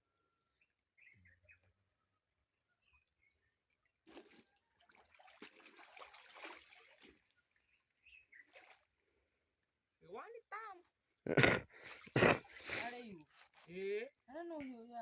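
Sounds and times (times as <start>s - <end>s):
water trickling and splashing: 4.0s - 9.0s.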